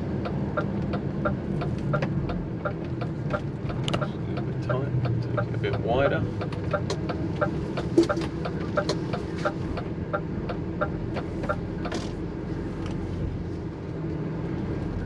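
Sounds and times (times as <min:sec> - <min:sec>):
turn indicator ticking: 0:00.0 - 0:12.2
diesel engine running: 0:00.0 - 0:15.0.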